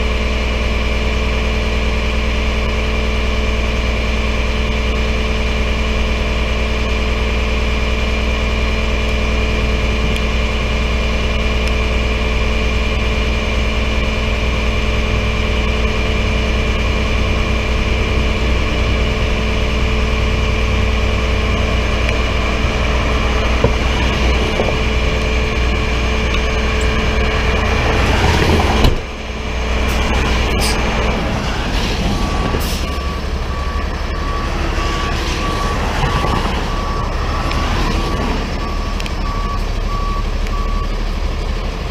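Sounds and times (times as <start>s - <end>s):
truck engine running: 0.0s - 41.9s
reversing beeper: 1.1s - 41.8s.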